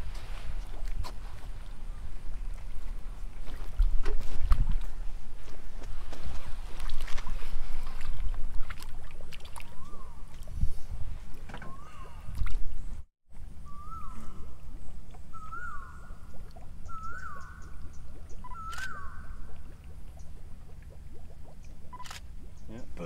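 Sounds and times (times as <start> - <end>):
water: 0.0 - 23.0
wind: 0.0 - 23.0
bird calling: 9.7 - 10.3, 11.5 - 12.3, 13.6 - 14.6, 15.2 - 20.4.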